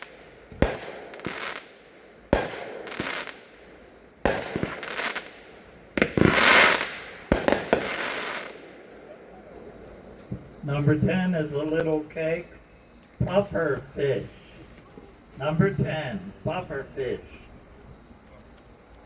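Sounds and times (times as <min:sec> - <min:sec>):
firework bangs: 0:00.0 - 0:12.0
firework crackling: 0:00.0 - 0:19.0.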